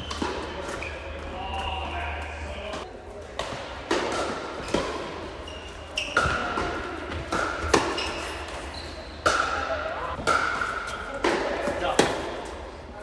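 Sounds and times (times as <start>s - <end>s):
ball bouncing on court: 6.0s - 8.2s
tennis ball strikes off racquets: 6.1s - 8.2s.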